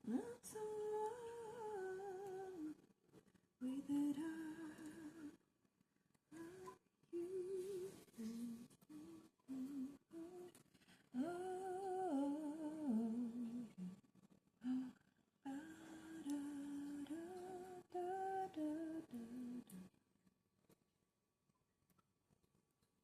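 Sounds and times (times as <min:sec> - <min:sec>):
woman humming a slow tune: 0:00.0 - 0:02.8, 0:03.6 - 0:05.4, 0:06.3 - 0:10.6, 0:11.2 - 0:14.0, 0:14.6 - 0:19.9.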